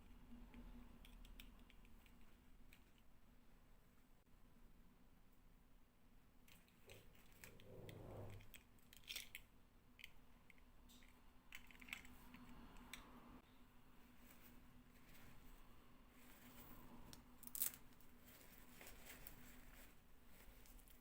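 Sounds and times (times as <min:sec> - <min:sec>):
plastic toys clicking: 0:01.0 - 0:03.1, 0:08.5 - 0:13.0
packaging rustle: 0:17.4 - 0:21.0.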